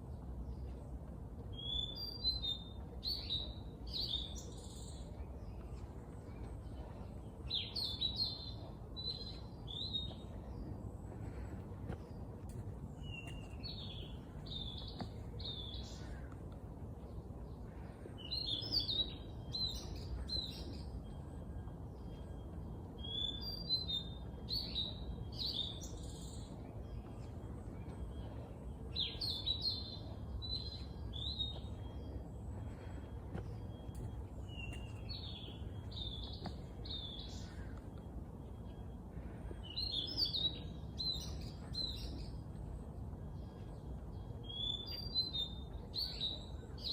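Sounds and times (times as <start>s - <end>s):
low background rumble: 0.0s - 46.9s
songbirds singing: 0.0s - 46.9s.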